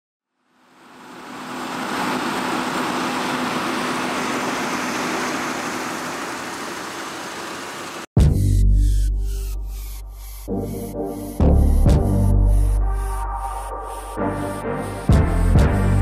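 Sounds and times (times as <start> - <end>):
combine harvester running: 0.5 - 8.1
music with heavy bass beat: 8.2 - 16.0.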